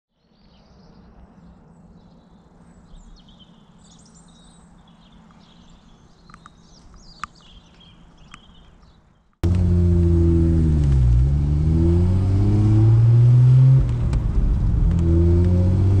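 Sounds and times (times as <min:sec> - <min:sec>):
small birds chirping: 0:00.2 - 0:09.4.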